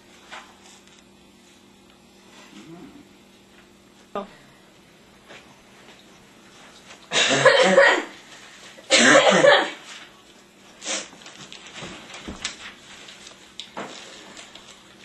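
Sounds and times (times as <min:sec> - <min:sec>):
person coughing: 0:07.1 - 0:08.2, 0:08.9 - 0:09.8.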